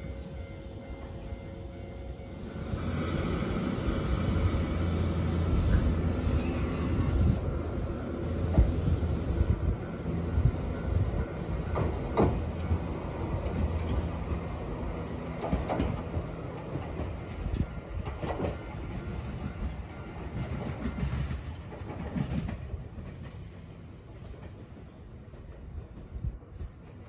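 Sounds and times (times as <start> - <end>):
electric train pulling away: 0.0 - 15.2.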